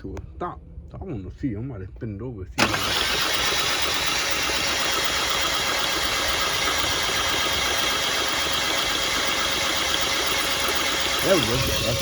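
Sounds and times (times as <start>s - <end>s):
car engine idling: 2.6s - 12.0s.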